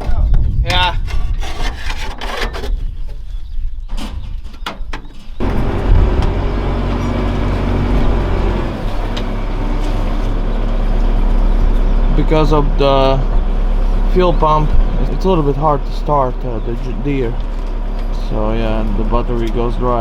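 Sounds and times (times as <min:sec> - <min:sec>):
diesel engine starting and running: 0:05.4 - 0:20.0.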